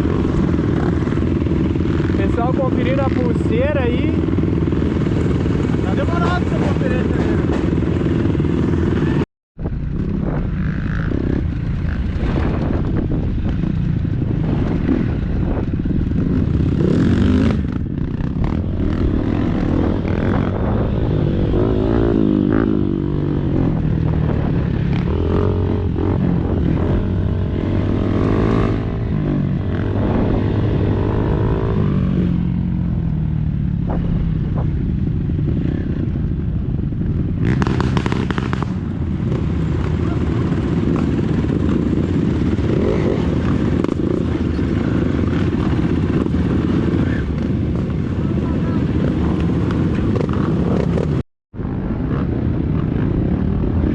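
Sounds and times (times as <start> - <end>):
dirt bike engine revving: 14.4 - 32.9, 37.4 - 47.8.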